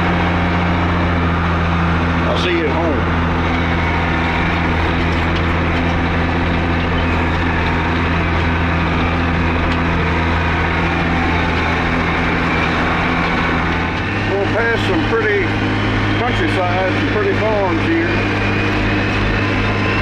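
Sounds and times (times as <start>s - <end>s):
wheel loader diesel engine drone: 0.0s - 20.0s.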